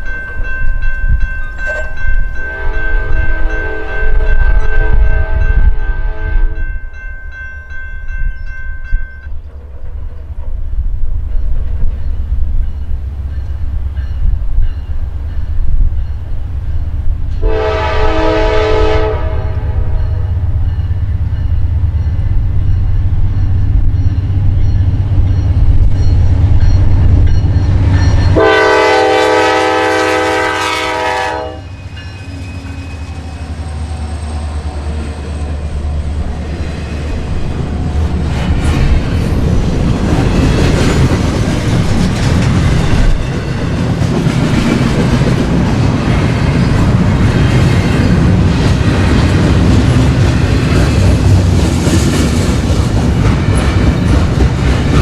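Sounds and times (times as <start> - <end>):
train rumbling past: 0.0 - 55.0
locomotive air horn blasts: 2.4 - 6.6, 17.4 - 20.3, 28.4 - 31.8.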